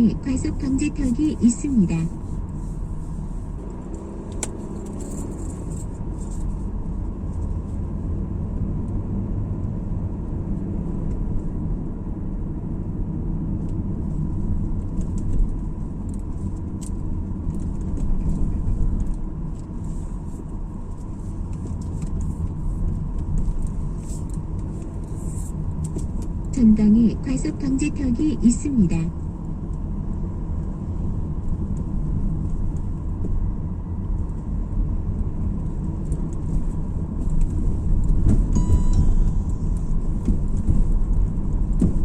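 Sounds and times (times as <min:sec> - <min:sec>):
car road and engine rumble: 0:00.0 - 0:42.0.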